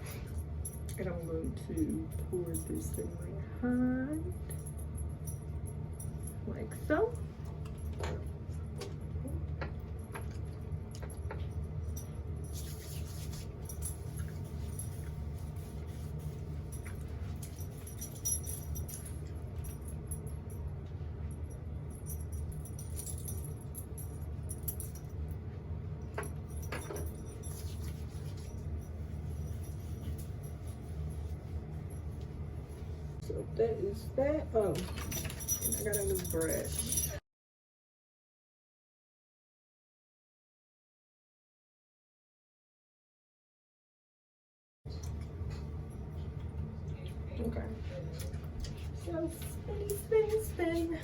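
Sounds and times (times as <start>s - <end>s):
hands rubbing hair: 12.5s - 17.3s.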